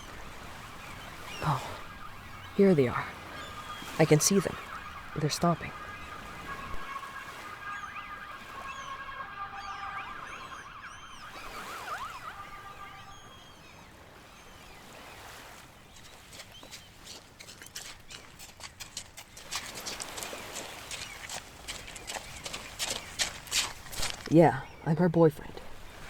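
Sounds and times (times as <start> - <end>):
ambulance siren warble: 0.0 - 14.6
small birds chirping: 0.0 - 26.0.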